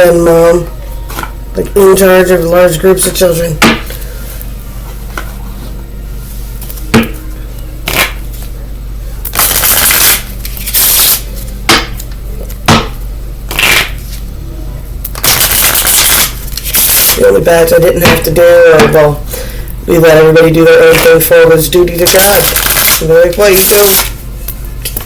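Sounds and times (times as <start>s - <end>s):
steady low hum: 0.0s - 25.0s
cards being shuffled: 9.3s - 11.3s, 22.0s - 24.2s.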